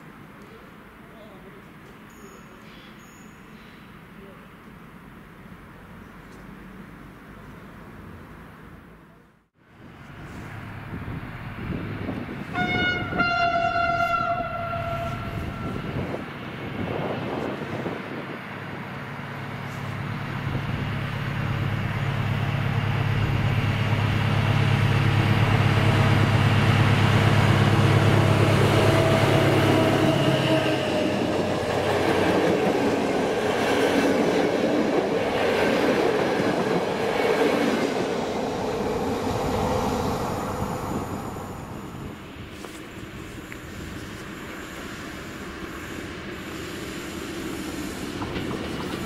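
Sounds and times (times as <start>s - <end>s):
diesel locomotive engine passing: 9.7s - 49.0s
train wheels clacking over rail joints: 47.4s - 49.0s.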